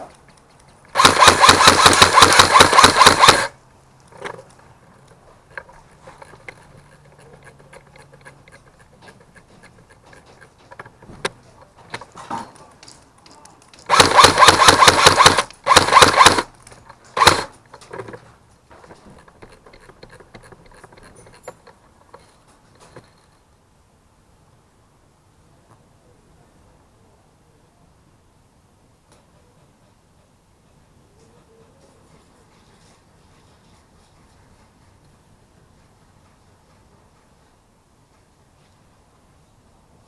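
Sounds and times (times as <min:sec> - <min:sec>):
airsoft guns firing bursts: 0:00.9 - 0:03.6, 0:13.9 - 0:16.5, 0:17.2 - 0:17.6.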